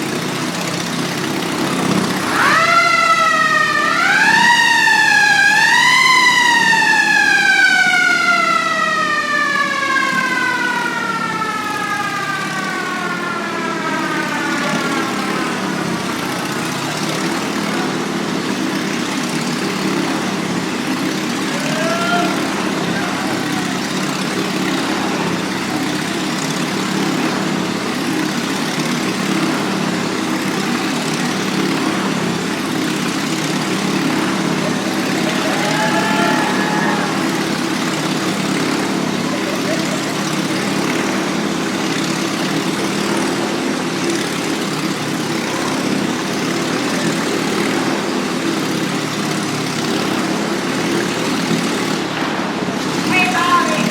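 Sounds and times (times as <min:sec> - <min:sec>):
motorcycle engine running: 0:00.0 - 0:53.9
siren chirp: 0:02.2 - 0:18.0.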